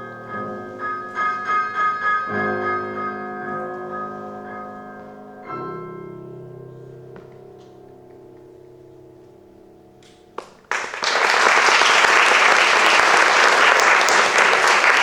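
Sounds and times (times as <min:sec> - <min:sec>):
slow piano playing: 0:00.0 - 0:10.8.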